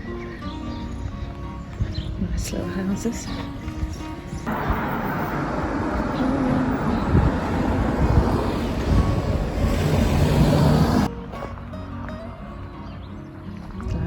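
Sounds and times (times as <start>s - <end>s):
road traffic rushing by: 4.0s - 11.3s.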